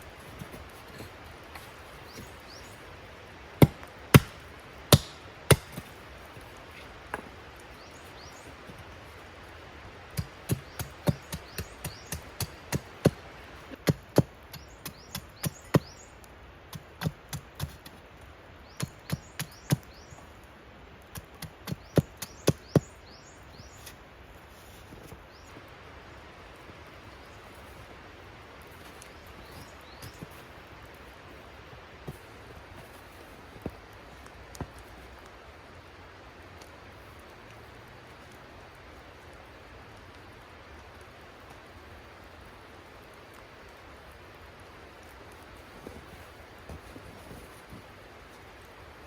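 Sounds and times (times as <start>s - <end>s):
axe chopping wood: 3.6s - 6.0s, 10.2s - 15.9s.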